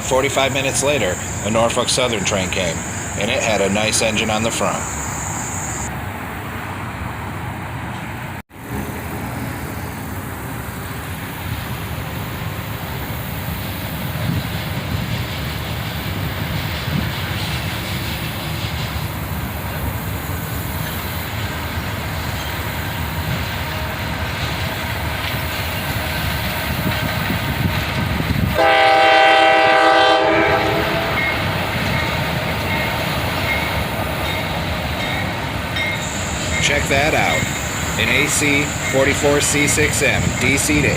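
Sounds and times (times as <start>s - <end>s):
diesel locomotive engine: 0.0s - 40.9s
rail noise: 0.0s - 40.9s
locomotive air horn blast: 28.6s - 31.4s.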